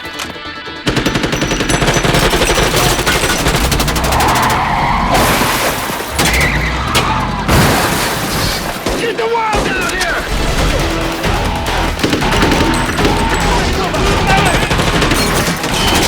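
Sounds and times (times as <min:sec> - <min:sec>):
automatic gunfire: 0:00.8 - 0:04.7, 0:08.8 - 0:16.0.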